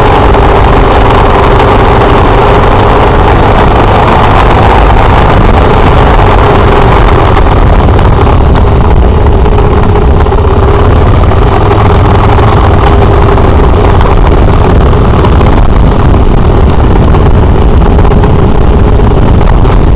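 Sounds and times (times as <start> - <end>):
motorcycle engine running: 0.0 - 19.9
wind rushing over microphone: 0.0 - 19.9.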